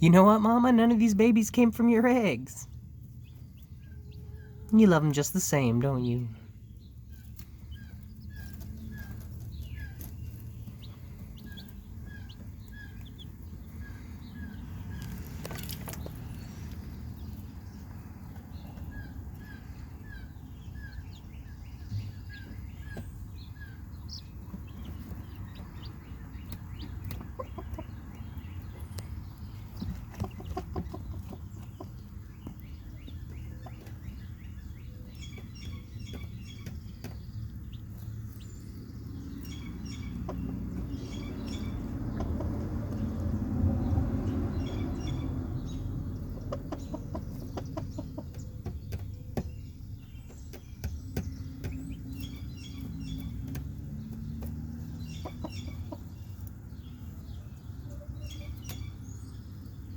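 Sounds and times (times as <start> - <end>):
chicks peeping: 0.0 - 59.9
hen clucking softly: 27.0 - 28.0.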